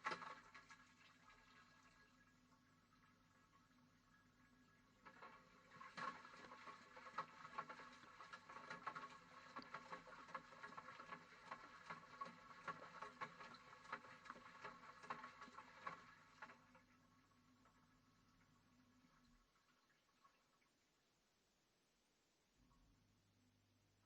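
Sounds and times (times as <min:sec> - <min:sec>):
water sloshing: 0:05.0 - 0:16.8.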